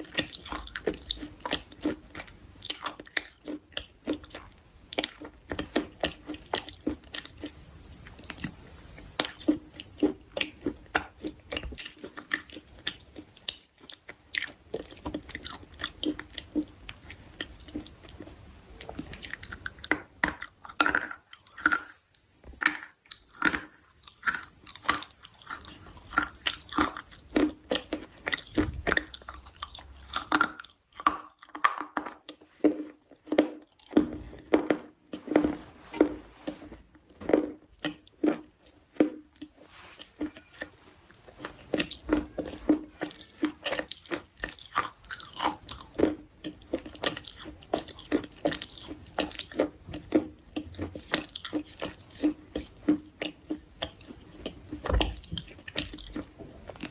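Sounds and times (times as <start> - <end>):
chewing crunchy food: 0.0 - 56.9.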